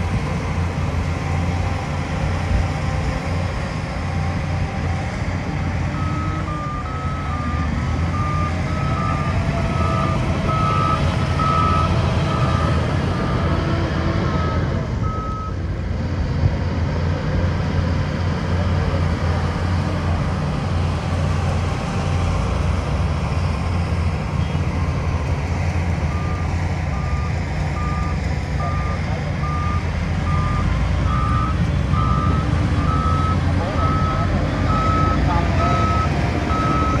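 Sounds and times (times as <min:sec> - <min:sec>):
diesel machinery engine rumble: 0:00.0 - 0:37.0
reversing alarm beeps: 0:05.9 - 0:13.5, 0:14.4 - 0:15.6, 0:26.1 - 0:37.0.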